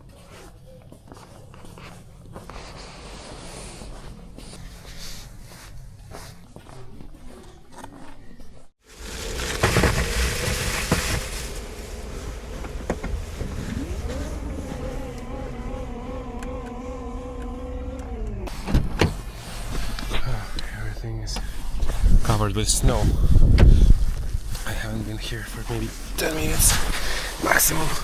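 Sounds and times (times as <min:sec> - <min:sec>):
car interior noise: 0:08.9 - 0:20.0.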